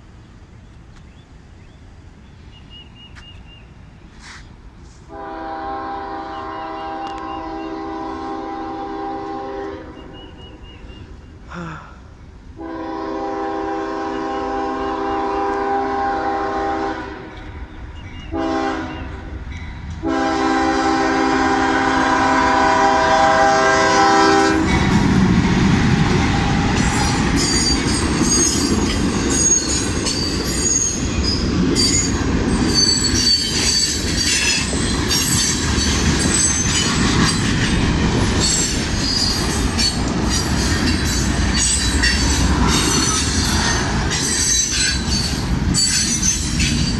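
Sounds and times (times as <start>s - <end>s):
train rumbling past: 0.0s - 11.5s, 12.1s - 46.9s
locomotive horn blasts: 5.1s - 10.2s, 12.6s - 17.3s, 18.3s - 19.4s, 20.0s - 24.7s
wheels squealing: 26.7s - 46.9s.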